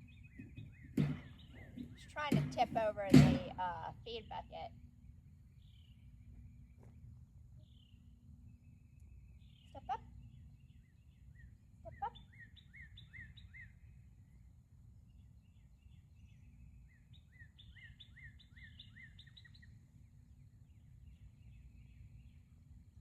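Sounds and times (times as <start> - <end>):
faint bird chirps: 4.4 - 22.6.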